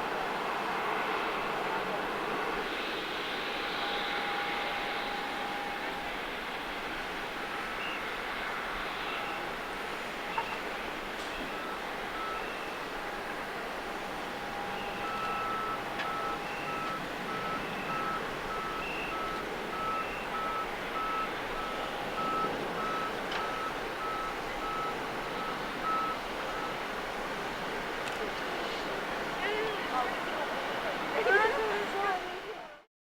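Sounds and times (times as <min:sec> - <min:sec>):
background noise rush: 0:00.0 - 0:32.9
vehicle reversing alarm beeping: 0:07.4 - 0:28.0.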